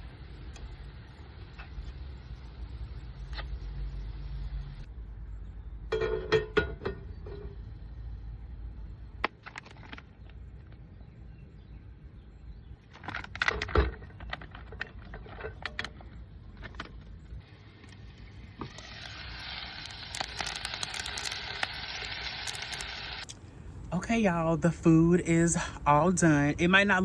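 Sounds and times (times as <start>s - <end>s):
steady hiss: 0.0s - 4.9s, 17.4s - 27.0s
cookware and utensils clinking: 5.9s - 7.6s.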